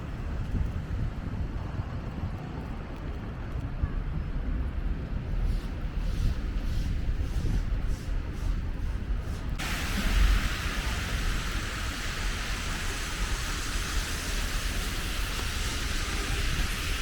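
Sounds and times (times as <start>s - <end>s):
traffic rumble: 0.0s - 17.0s
wind: 0.0s - 17.0s
steady hiss: 5.4s - 17.0s.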